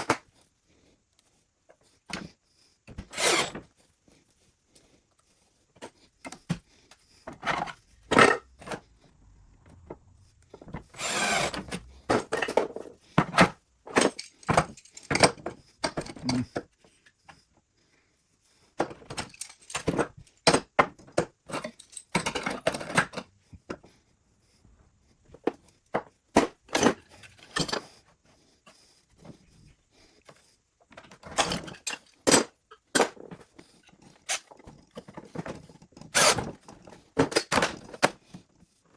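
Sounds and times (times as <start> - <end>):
tools and wood knocking and clinking: 5.8 - 9.0, 9.8 - 16.7, 18.8 - 23.8, 25.4 - 27.9, 30.9 - 33.5, 34.3 - 38.3
long scraping sound: 7.5 - 12.4.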